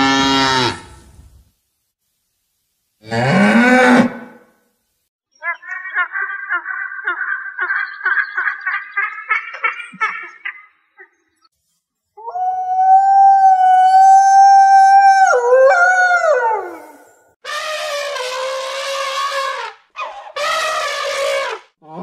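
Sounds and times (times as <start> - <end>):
wolf howling: 12.2 - 17.2.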